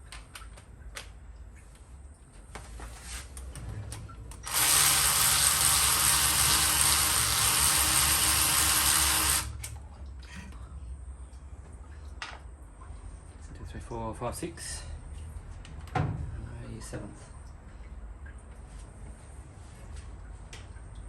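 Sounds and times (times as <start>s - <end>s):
power drill running: 4.4s - 9.6s.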